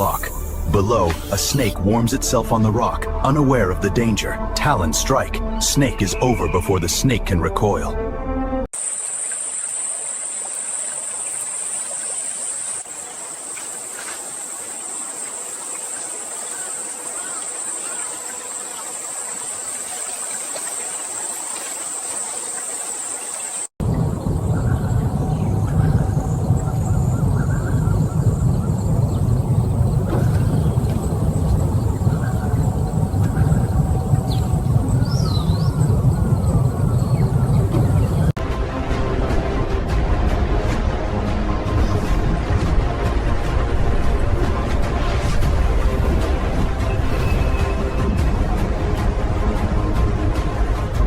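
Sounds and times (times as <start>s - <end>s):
high insect drone: 8.8s - 23.7s
low wind rumble: 23.8s - 51.0s.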